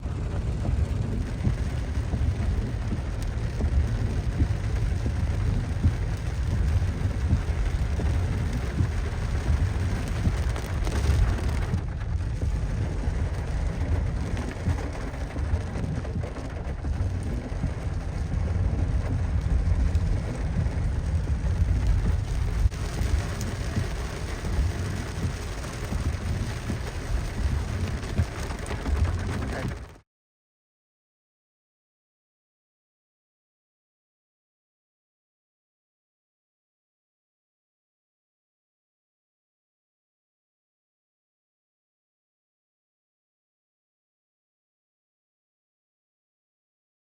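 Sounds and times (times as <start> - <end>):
heavy rain pouring: 0.0 - 30.0
low wind rumble: 0.0 - 30.0.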